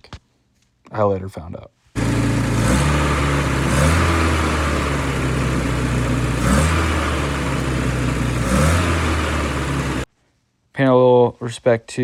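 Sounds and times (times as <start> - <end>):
car engine idling: 2.0 - 10.1
engine throttle blip: 2.0 - 10.1.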